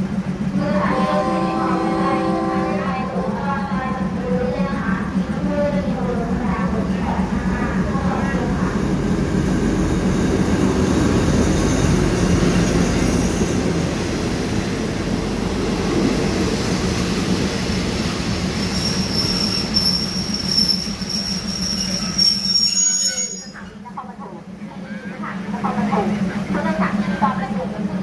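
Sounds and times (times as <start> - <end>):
train rumbling past: 0.0 - 28.0
high-pitched brake squeal: 18.6 - 23.8.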